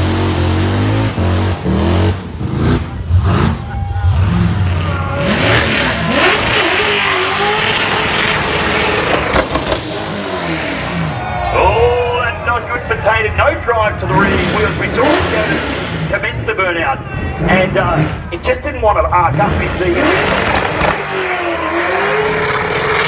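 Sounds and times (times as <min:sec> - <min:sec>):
car revving up and down: 0:00.0 - 0:12.2, 0:12.9 - 0:23.0
commentator speaking: 0:11.5 - 0:20.8.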